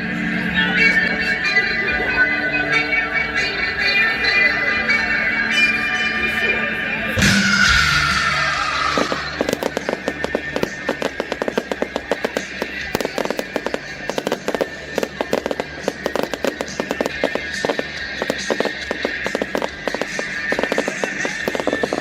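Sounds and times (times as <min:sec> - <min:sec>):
music playing: 0:00.0 - 0:22.0
fireworks crackling: 0:07.2 - 0:22.0.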